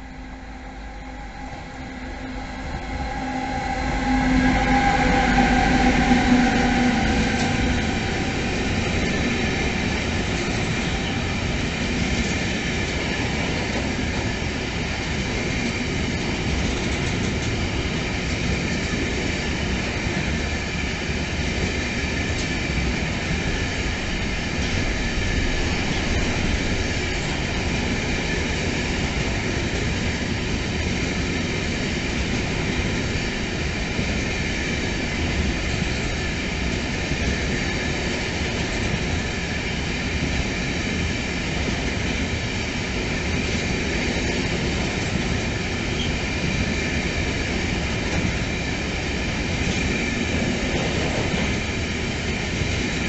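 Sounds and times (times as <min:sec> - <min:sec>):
electric locomotive whine: 0:00.0 - 0:53.0.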